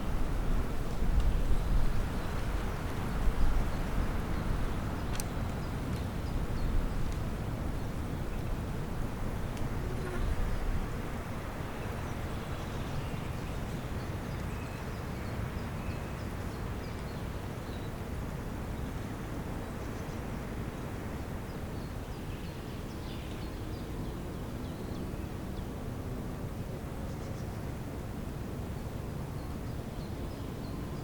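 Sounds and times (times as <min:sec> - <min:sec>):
low rumbling background noise: 0:00.0 - 0:31.0.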